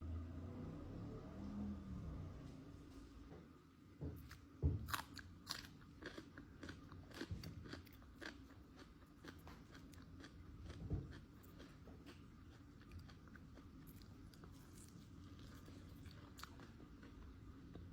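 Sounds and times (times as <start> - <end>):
crackling chewing: 4.3 - 17.9
biting crunchy fried chicken: 4.9 - 17.8.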